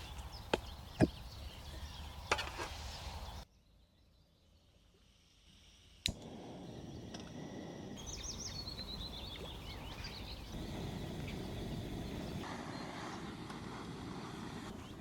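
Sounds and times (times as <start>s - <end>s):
bird singing chirps and trill: 8.0s - 12.9s.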